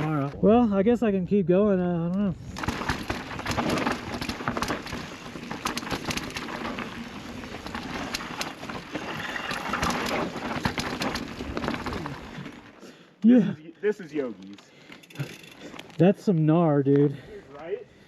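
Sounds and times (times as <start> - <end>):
bike tyres on dirt trail: 0.0 - 0.6, 2.3 - 13.5, 14.1 - 18.0
bike clicks and rattles: 2.1 - 12.8, 14.2 - 16.0.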